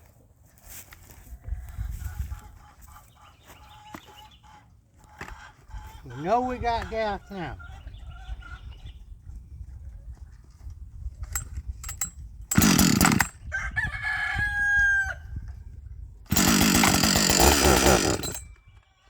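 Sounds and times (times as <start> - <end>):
chainsaw starting and running: 11.8 - 13.4, 16.3 - 18.4
rooster crowing: 13.5 - 15.3.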